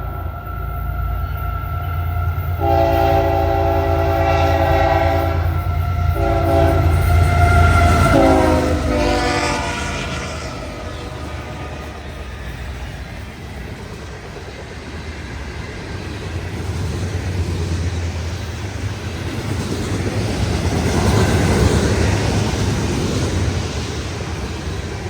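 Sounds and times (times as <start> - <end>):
locomotive engine rumble: 0.0 - 25.0
rail noise: 0.0 - 25.0.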